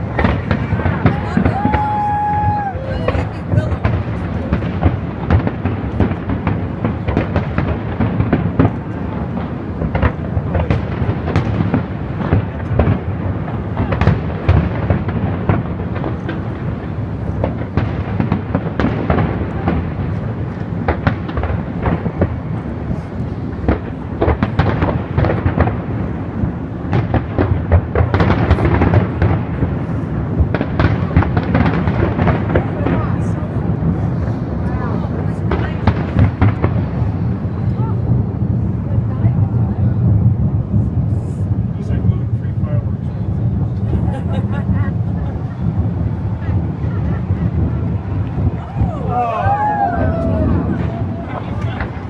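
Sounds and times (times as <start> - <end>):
distant fireworks bangs and crackles: 0.0 - 52.0
deep rumble: 28.8 - 52.0.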